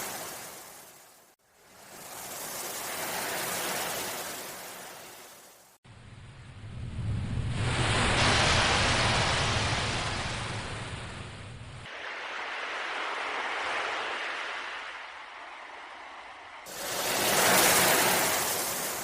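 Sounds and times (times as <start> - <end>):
ocean surf hissing: 0.0 - 1.1, 11.9 - 19.0
deep low rumble: 6.0 - 11.9.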